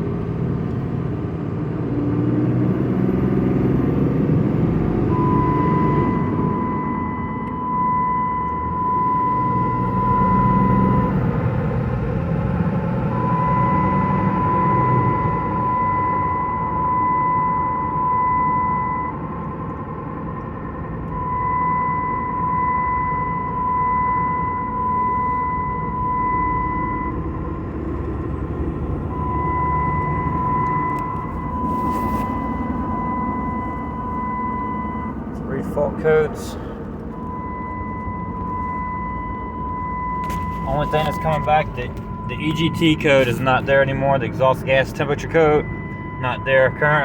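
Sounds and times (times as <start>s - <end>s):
engine and road rumble: 0.0s - 47.0s
high beep tone: 5.0s - 11.4s, 13.0s - 19.2s, 21.2s - 27.2s, 29.0s - 35.2s, 37.2s - 47.0s.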